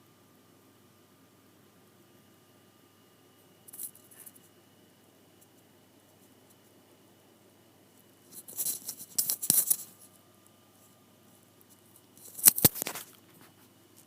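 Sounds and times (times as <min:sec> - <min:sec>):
close-up crackling and rustling: 0:03.4 - 0:04.6, 0:05.3 - 0:06.9, 0:07.8 - 0:14.0.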